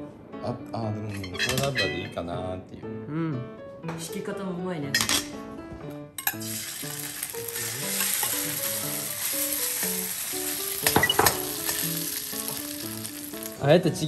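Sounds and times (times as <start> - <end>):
background music: 0.0 - 14.0
food sizzling in oil: 6.2 - 14.0.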